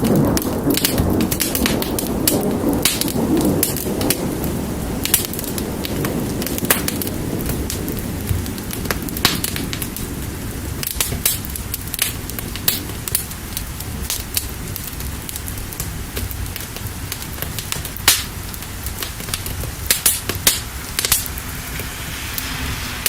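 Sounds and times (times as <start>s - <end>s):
fire crackling and popping: 0.0s - 23.0s
steady rain: 0.0s - 23.0s
low rumble: 18.4s - 23.0s.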